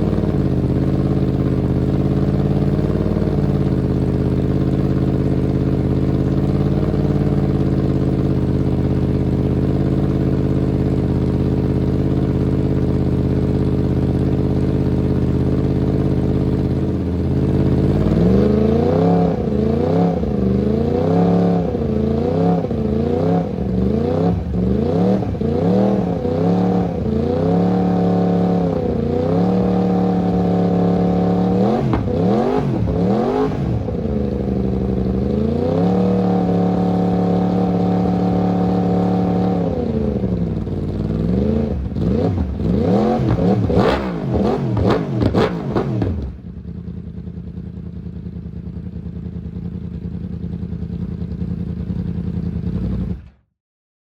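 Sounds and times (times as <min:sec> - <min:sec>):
motorcycle engine revving: 0:00.0 - 0:53.5.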